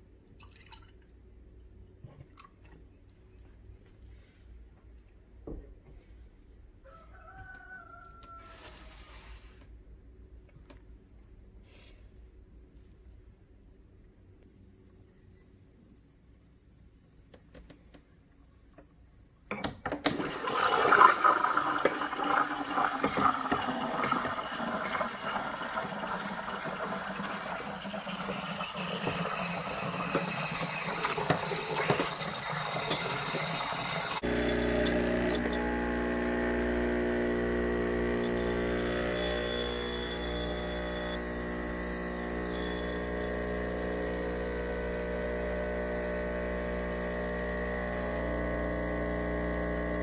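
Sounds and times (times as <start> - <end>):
espresso machine pump hum: 14.5 - 50.0
steam wand hissing and gurgling: 20.2 - 34.4.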